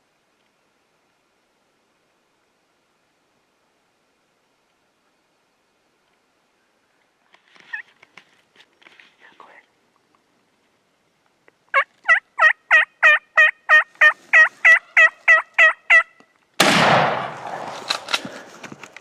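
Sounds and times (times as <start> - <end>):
turkey yelps: 11.7 - 16.1
shotgun shot: 16.6 - 18.5.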